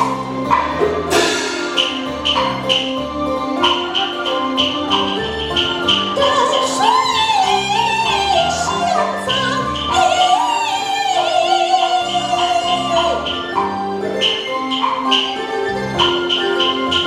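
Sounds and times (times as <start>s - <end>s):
instrumental ensemble: 0.0s - 17.0s
person singing opera: 6.2s - 13.5s.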